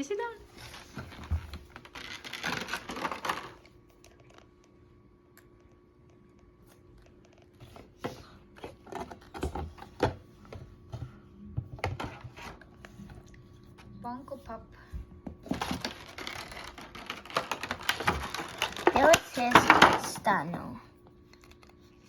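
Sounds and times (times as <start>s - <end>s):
toy packaging being opened: 1.8s - 3.6s, 15.5s - 19.4s.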